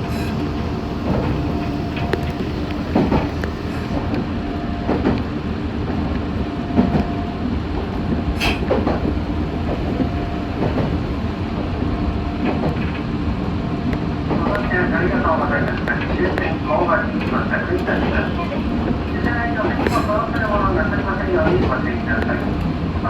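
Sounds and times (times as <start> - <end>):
train rumbling on rails: 0.0 - 23.0
brief hiss: 8.4 - 8.8.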